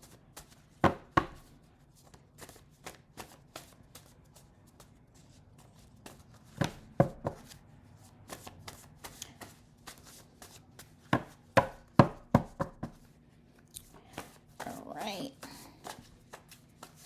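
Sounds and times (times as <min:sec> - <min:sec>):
cards slapping a hard surface: 0:00.4 - 0:04.2, 0:08.2 - 0:13.0, 0:13.8 - 0:14.7, 0:15.7 - 0:17.0
cards being shuffled: 0:02.0 - 0:07.6, 0:15.7 - 0:17.0.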